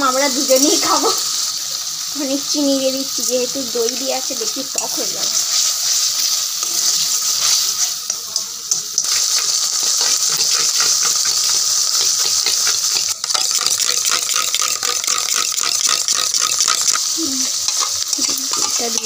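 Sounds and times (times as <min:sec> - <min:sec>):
paste sizzling in hot oil: 0:00.0 - 0:19.0
metal spatula scraping pan: 0:09.0 - 0:19.0.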